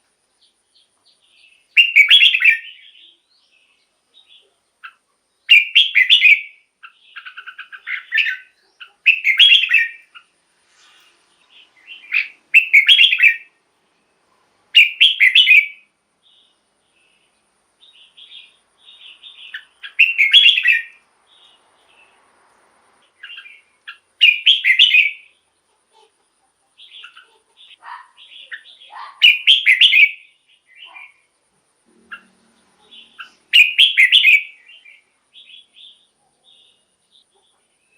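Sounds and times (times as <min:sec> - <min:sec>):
bird whistled song: 0:01.4 - 0:03.3, 0:04.2 - 0:10.3, 0:11.4 - 0:13.6, 0:14.8 - 0:16.6, 0:17.8 - 0:22.1, 0:23.2 - 0:25.4, 0:26.8 - 0:31.2, 0:32.1 - 0:37.3.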